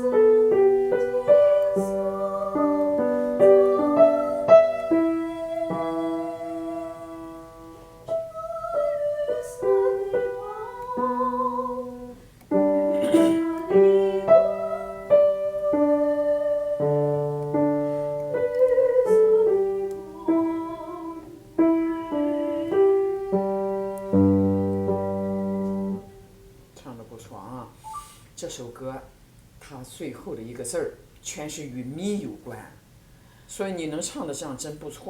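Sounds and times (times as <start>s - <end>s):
person singing with vibrato: 0.0s - 12.2s, 12.8s - 24.7s
piano accompaniment: 0.0s - 26.6s.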